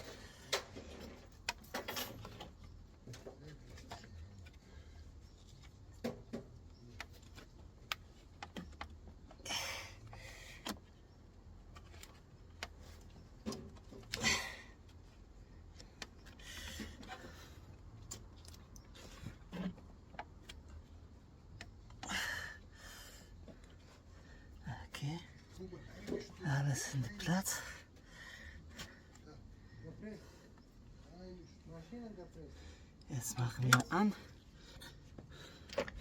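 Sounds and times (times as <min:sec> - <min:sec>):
rattling and scraping of parts: 0:00.0 - 0:09.4, 0:10.0 - 0:22.0, 0:32.6 - 0:36.0.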